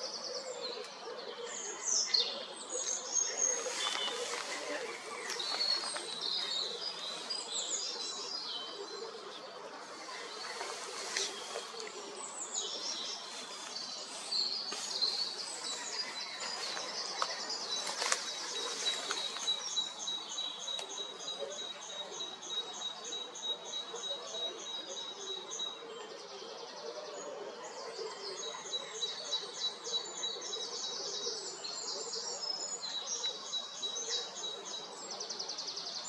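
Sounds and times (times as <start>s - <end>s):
birds singing and chirping: 0.0s - 36.0s.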